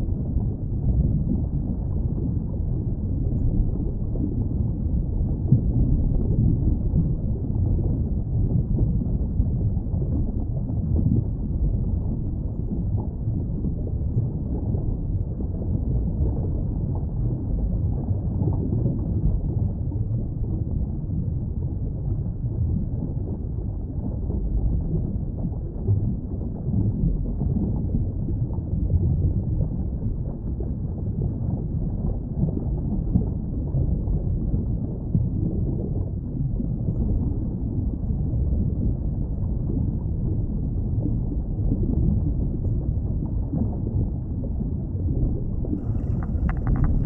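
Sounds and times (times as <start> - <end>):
muffled low rumbling ambience: 0.0 - 47.0
dull rushing water: 36.5 - 47.0.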